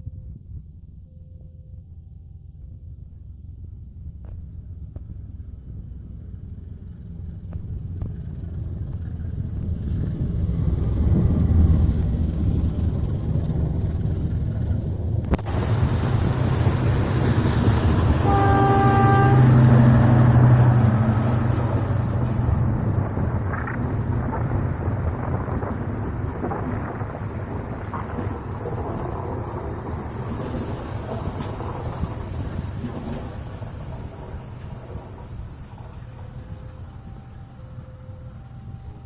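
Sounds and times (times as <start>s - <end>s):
train rumble: 0.0s - 39.0s
wheel and rail noise: 5.0s - 39.0s
locomotive horn blast: 15.5s - 23.2s.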